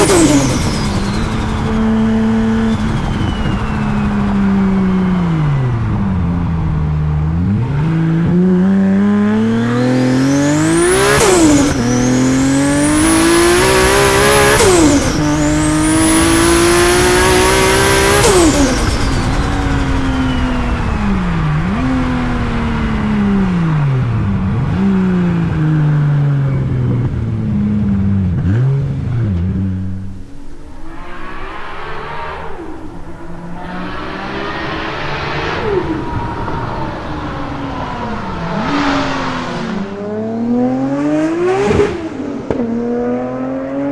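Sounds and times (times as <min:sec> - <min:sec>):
turbo whistle: 0:00.0 - 0:06.1, 0:30.1 - 0:39.9
car engine accelerating: 0:00.0 - 0:43.9.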